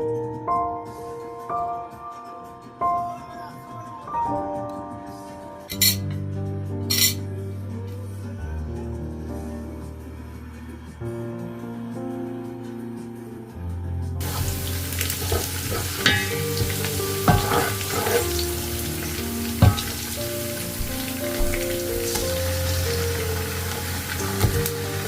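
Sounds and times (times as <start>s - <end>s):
food sizzling in hot oil: 14.2s - 25.0s
utensil knocking against pan: 14.3s - 18.5s, 19.1s - 20.2s.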